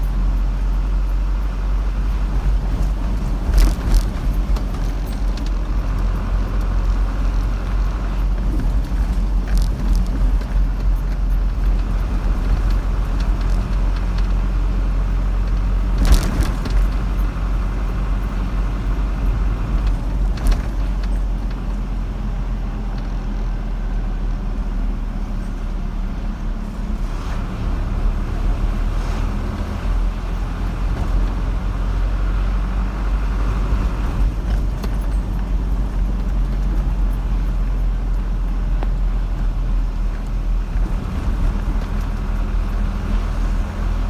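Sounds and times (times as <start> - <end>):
car driving along road: 0.0 - 44.0.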